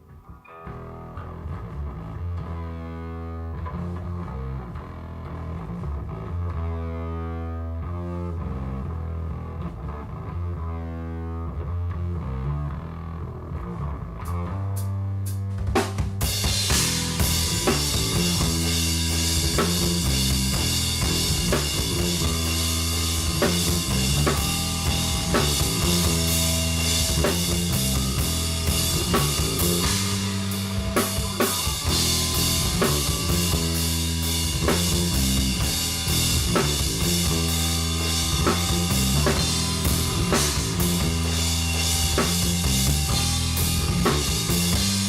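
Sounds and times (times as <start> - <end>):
sustained low notes: 0.7 - 45.0
drum kit beat: 14.7 - 45.0.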